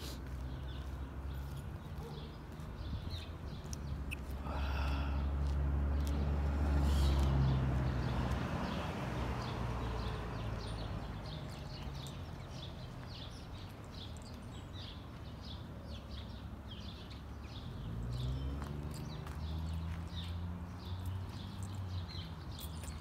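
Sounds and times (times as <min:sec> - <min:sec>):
faint outdoor background noise: 0:00.0 - 0:23.0
small birds chirping: 0:00.0 - 0:23.0.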